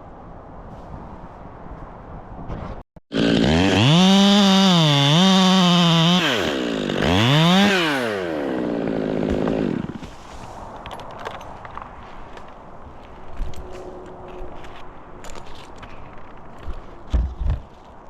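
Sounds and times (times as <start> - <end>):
chainsaw revving: 3.1 - 10.0.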